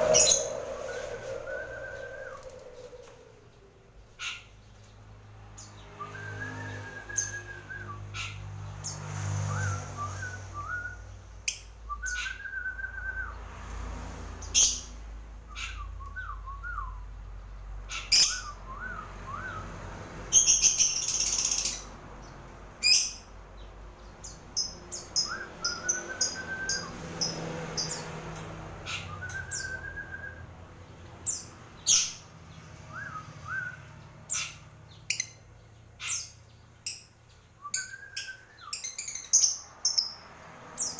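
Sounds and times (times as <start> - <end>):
soft wavering whistles: 0.0 - 4.0, 6.0 - 8.2, 25.0 - 28.0, 29.0 - 30.5, 32.8 - 34.5
lovebird chirping: 0.0 - 4.4, 37.7 - 40.2.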